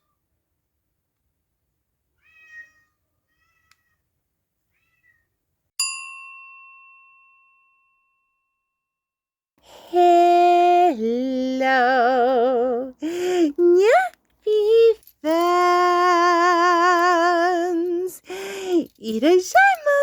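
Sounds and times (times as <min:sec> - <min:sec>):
cat meowing: 0:02.2 - 0:04.0, 0:04.7 - 0:05.3
bright ding ringing: 0:05.8 - 0:08.5.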